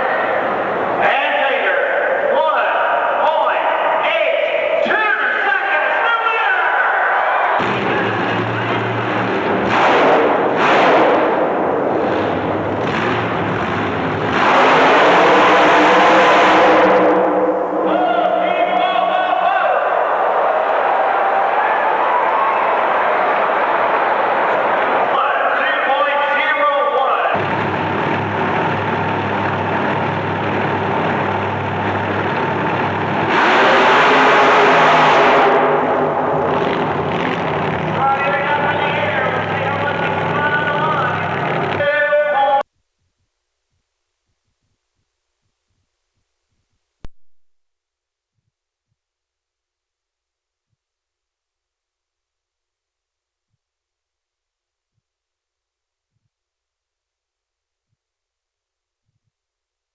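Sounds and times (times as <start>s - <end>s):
racing truck engine surging: 7.4s - 26.4s, 27.3s - 41.9s.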